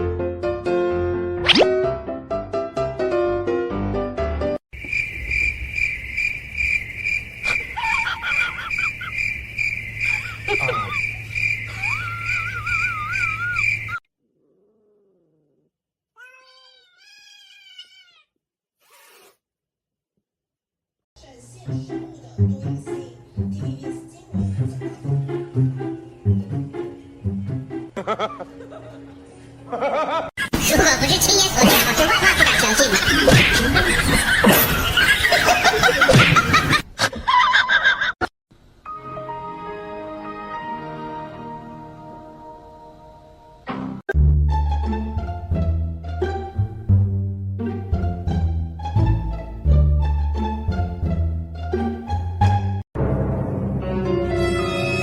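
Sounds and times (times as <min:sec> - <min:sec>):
people laughing: 0:07.5 - 0:09.2, 0:10.1 - 0:11.1, 0:28.0 - 0:38.2
high chirping with warbling whistle: 0:09.7 - 0:14.0
falling cries: 0:10.0 - 0:14.0
cat meowing: 0:16.2 - 0:18.3
soft background music: 0:21.2 - 0:30.1.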